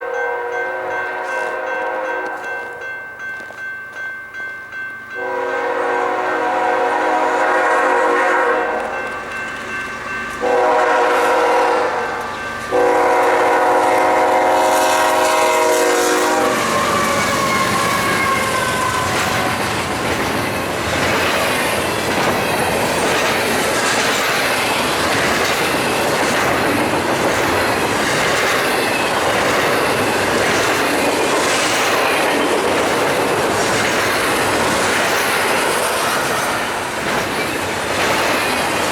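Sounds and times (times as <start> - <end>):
locomotive air horn blasts: 0.0 - 2.5, 5.2 - 9.0, 10.4 - 19.7
train rumbling past: 4.7 - 38.9
wheel clatter over rail joints: 16.6 - 38.9.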